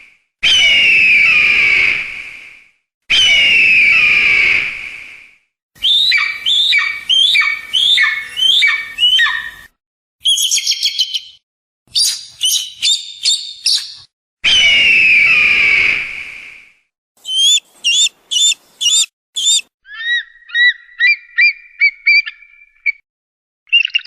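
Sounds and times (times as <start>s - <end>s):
eagle screaming and chittering: 3.1s - 4.6s, 5.8s - 11.3s, 12.0s - 16.0s, 17.2s - 22.6s.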